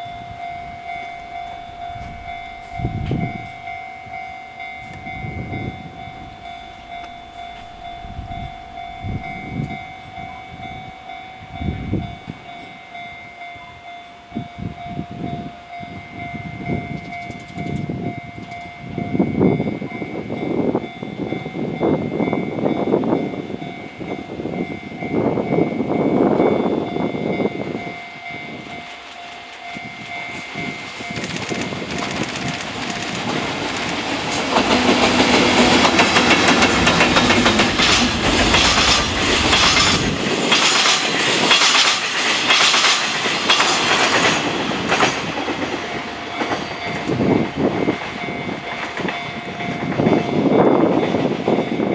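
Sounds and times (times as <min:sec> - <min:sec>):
freight train passing: 0:00.0 - 0:51.9
wagon wheels clacking over rail joints: 0:31.0 - 0:47.1.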